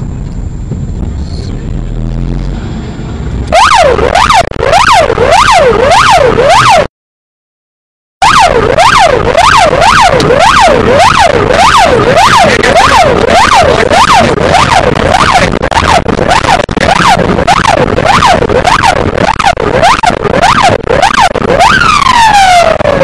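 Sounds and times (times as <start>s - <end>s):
road and engine noise: 0.0s - 6.9s, 8.2s - 23.0s
police siren yelping: 3.5s - 6.9s, 8.2s - 23.0s.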